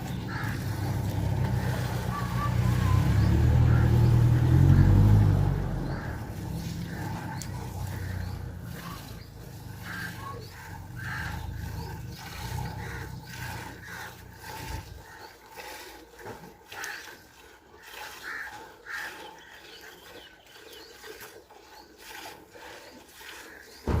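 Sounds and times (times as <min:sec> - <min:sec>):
milk squirting into a pail: 0:20.9 - 0:24.0.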